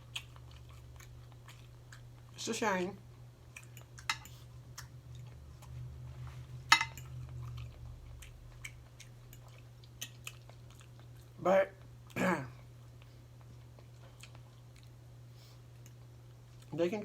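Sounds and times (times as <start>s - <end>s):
person chewing food: 0.0s - 2.4s, 3.0s - 16.7s.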